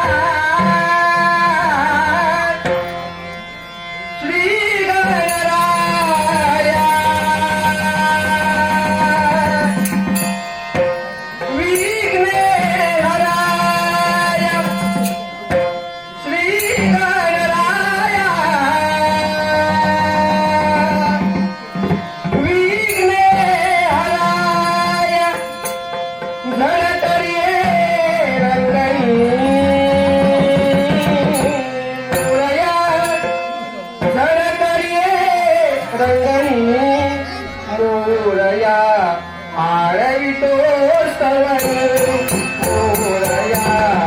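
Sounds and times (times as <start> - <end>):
hand drum: 19.7 - 34.3, 41.6 - 44.0
man singing a hymn: 26.4 - 33.4, 34.0 - 44.0.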